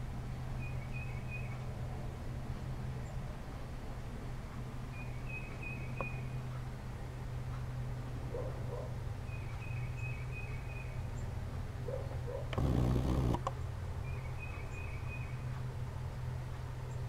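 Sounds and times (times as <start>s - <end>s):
high twittering bird calls: 4.9s - 6.4s
steady low hum: 9.0s - 17.0s.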